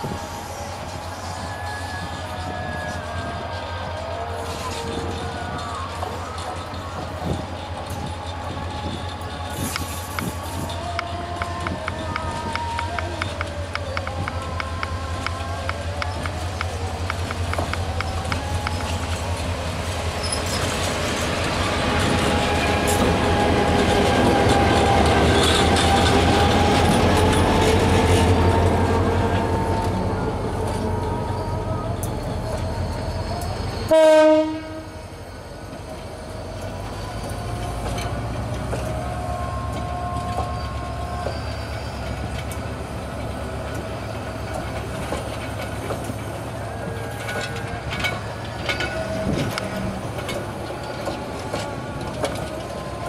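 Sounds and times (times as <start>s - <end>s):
diesel locomotive engine running: 0.0s - 53.0s
train wheels on rails: 0.0s - 53.0s
loud train horn blast: 33.8s - 35.2s.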